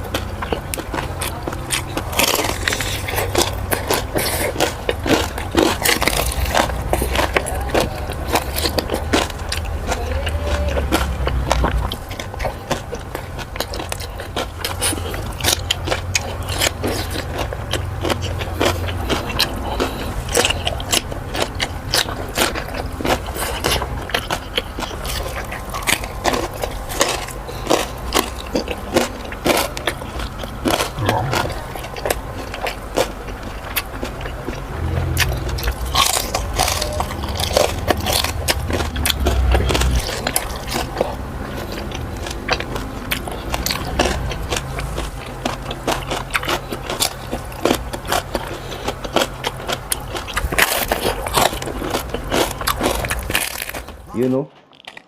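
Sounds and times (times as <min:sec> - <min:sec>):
crunching of crunchy food: 0:00.0 - 0:55.0.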